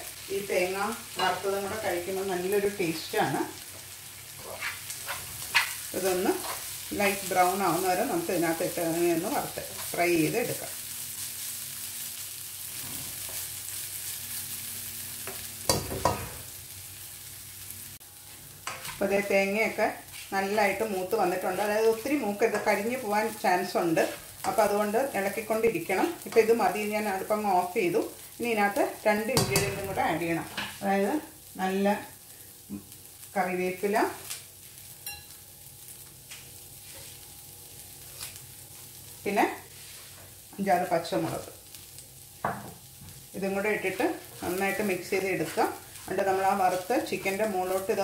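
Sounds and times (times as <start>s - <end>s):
food sizzling in oil: 0.0s - 48.0s
spatula scraping a pan: 4.5s - 6.9s, 18.6s - 19.1s.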